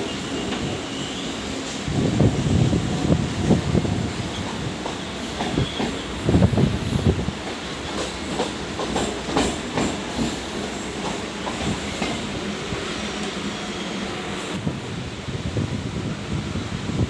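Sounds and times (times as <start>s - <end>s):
electric train running: 1.9s - 15.0s.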